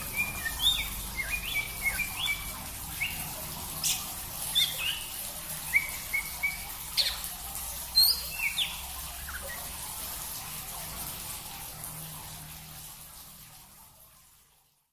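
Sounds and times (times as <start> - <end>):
songbirds chirping: 0.0 - 10.0.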